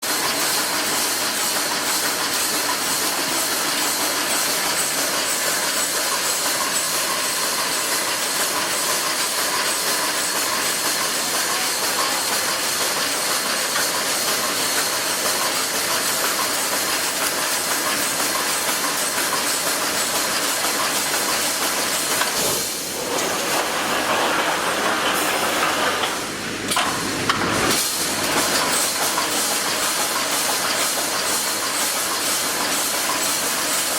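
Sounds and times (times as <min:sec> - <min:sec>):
welding machine hissing: 0:00.1 - 0:33.9.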